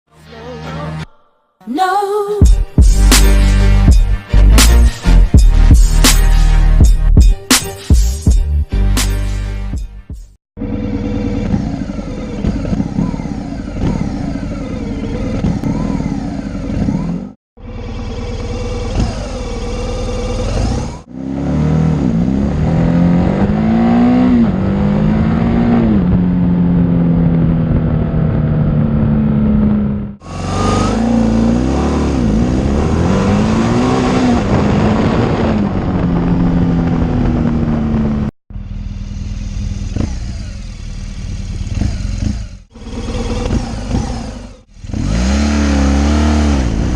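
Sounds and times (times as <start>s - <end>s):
motorcycle engine accelerating: 10.6s - 46.9s.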